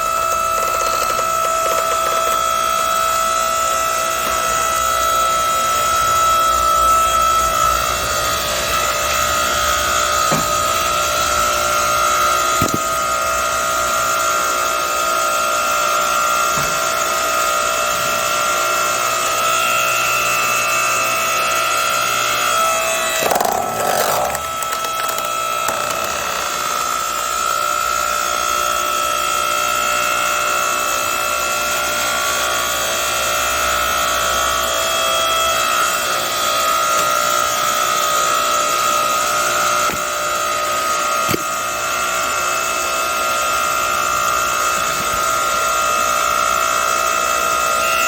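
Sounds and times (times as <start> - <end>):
log splitter whining: 0.0 - 48.0
wood cracking and splintering: 23.2 - 26.7.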